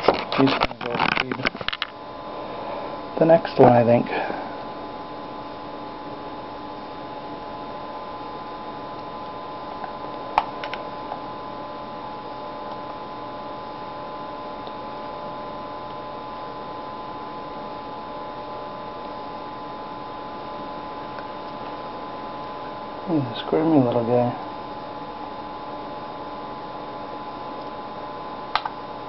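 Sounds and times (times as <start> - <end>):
electrical hum: 0.0 - 29.0.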